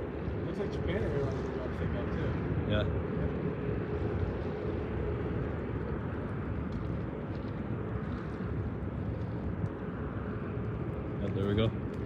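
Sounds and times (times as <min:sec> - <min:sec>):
distant jet airliner rumble: 0:00.0 - 0:12.0.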